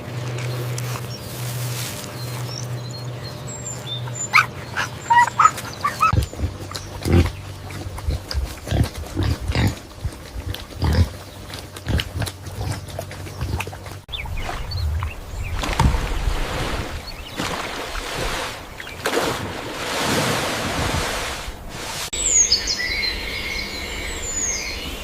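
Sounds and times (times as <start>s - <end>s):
high animal chirps: 3.7s - 7.3s
low grunt-like animal calls: 3.9s - 14.0s.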